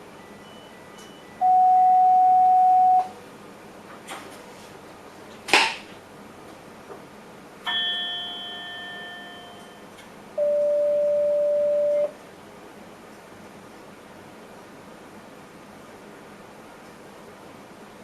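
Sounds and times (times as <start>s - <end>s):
warning chime: 7.7s - 9.8s.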